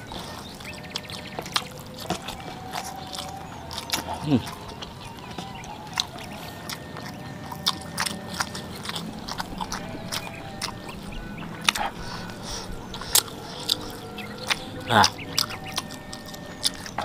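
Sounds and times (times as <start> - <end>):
sharp mouth clicks: 0.0 - 17.0
wet chewing and lip-smacking: 0.0 - 17.0.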